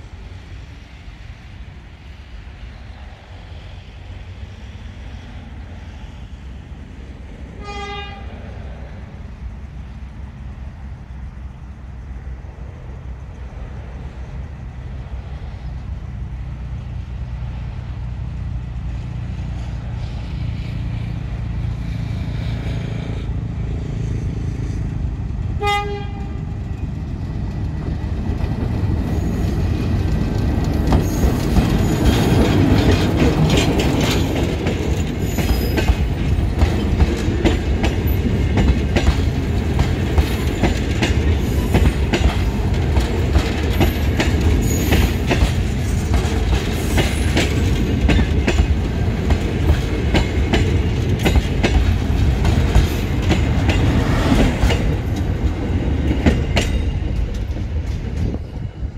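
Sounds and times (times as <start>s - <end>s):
passenger train rumbling: 0.0s - 58.9s
wheels clicking over rail joints: 26.1s - 58.7s
high wheel squeal: 35.2s - 36.2s.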